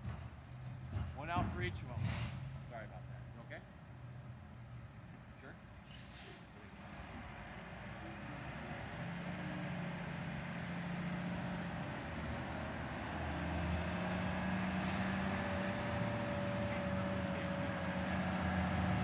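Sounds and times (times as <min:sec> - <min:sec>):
heavy truck engine running: 0:06.1 - 0:19.0.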